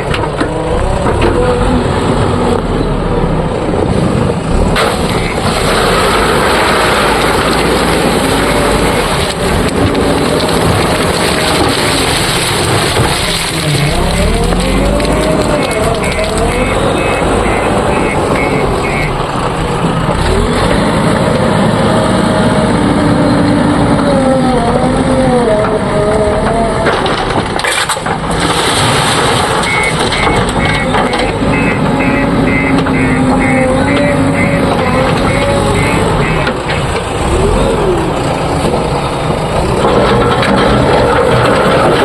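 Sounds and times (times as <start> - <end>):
diesel engine revving: 0.0 - 42.0
reversing alarm beeping rapidly: 16.7 - 19.1, 29.7 - 34.7.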